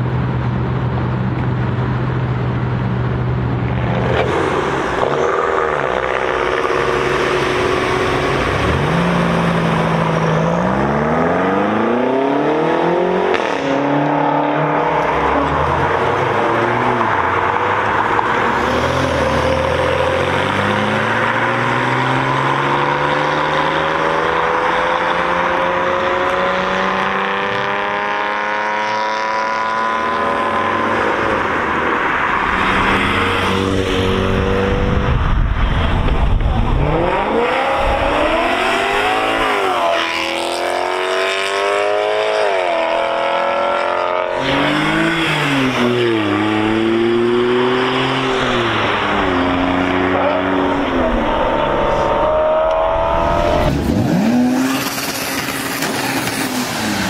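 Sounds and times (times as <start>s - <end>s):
car engine revving: 1.4s - 57.0s.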